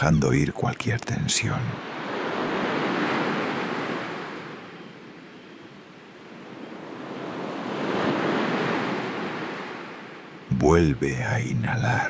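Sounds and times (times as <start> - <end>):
sea waves breaking on shore: 0.0 - 12.0.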